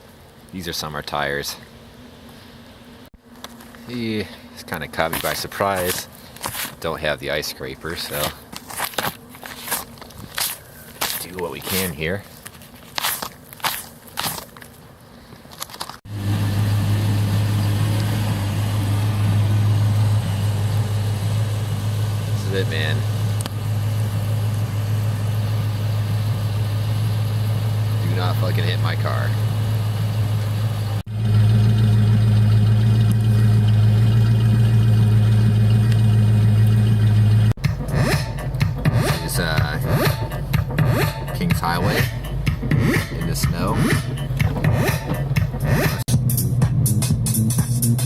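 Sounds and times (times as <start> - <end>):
engine running with low hum: 0.0 - 48.0
brief crunching noises: 8.3 - 16.0.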